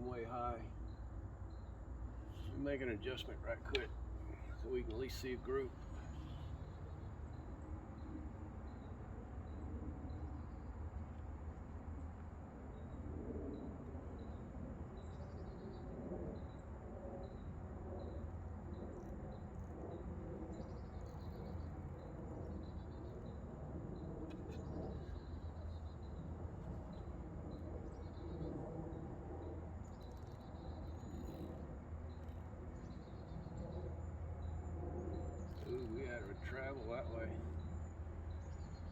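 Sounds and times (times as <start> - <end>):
faint insect chirping: 0.4 - 10.6.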